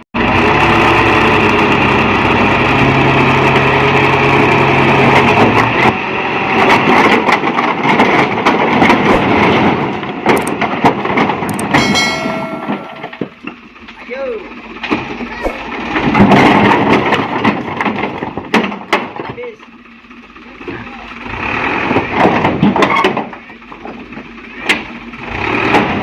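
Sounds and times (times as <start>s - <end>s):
dump truck engine running: 0.0s - 26.0s
stones tumbling out of truck bed: 6.9s - 13.5s, 14.9s - 19.4s.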